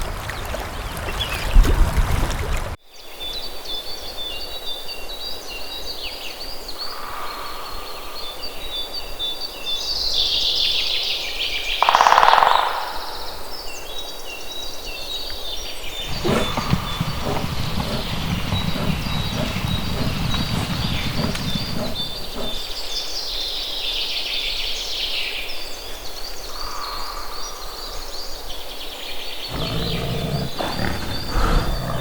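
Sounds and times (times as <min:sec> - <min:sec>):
birds singing: 0:00.0 - 0:02.8, 0:15.8 - 0:22.8, 0:29.5 - 0:32.0.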